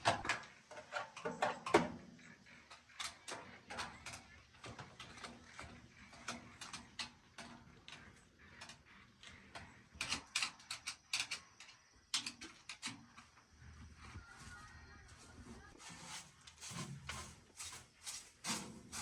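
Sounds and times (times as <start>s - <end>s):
hand tools and metal parts clicking: 8.6s - 13.4s.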